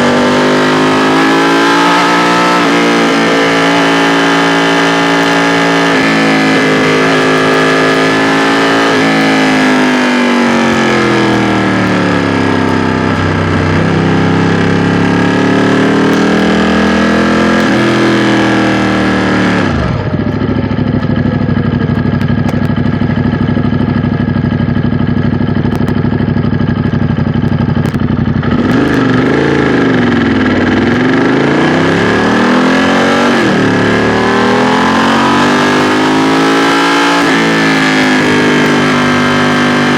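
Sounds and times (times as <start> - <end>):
motorcycle engine revving: 0.0 - 39.9
motorcycle engine idling: 9.4 - 15.6, 19.7 - 31.4.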